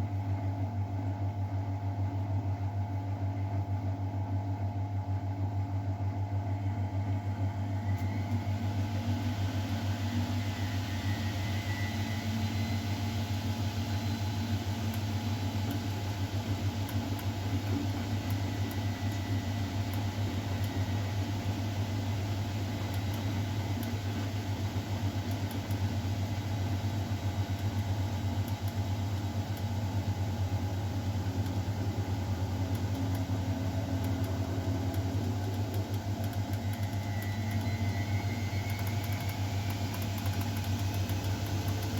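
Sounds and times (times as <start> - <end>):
washing machine humming: 0.0 - 41.9.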